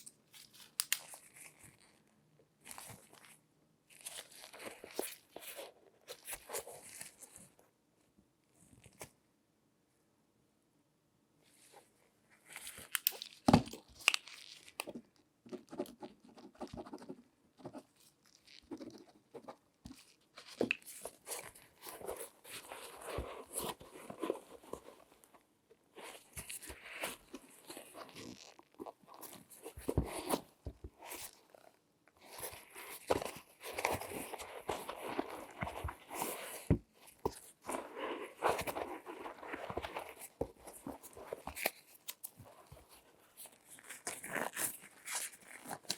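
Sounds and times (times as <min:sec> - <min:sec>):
gloved hands rustling and rubbing: 0:02.6 - 0:07.6, 0:17.7 - 0:45.9.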